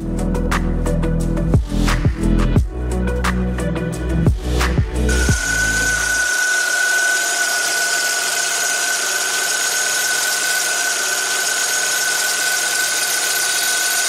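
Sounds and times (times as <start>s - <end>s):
high-pitched whine: 5.1s - 14.0s.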